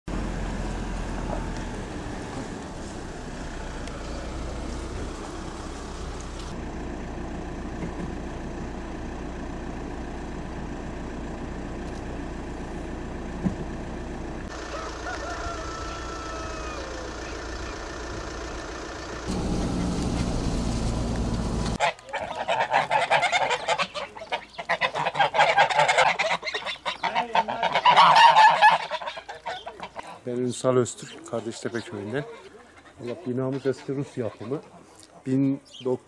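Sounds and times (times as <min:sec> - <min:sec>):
outdoor background noise: 0:00.1 - 0:36.0
descending bird calls: 0:14.5 - 0:20.4, 0:21.7 - 0:36.0.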